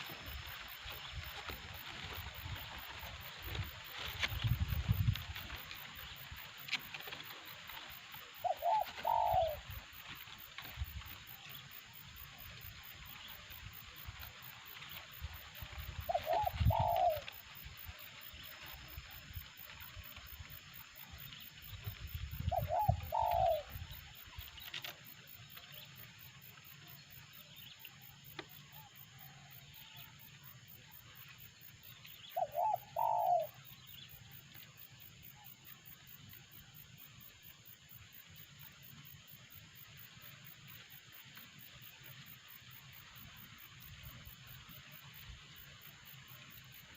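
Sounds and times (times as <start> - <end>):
dove cooing: 7.0 - 10.2, 15.9 - 18.1, 22.3 - 24.2, 32.3 - 33.8.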